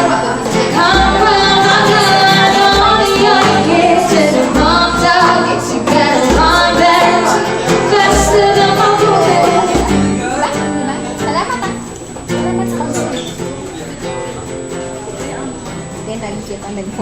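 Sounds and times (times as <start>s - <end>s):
voices singing a pop song: 0.0s - 10.9s
low beat: 0.6s - 10.8s.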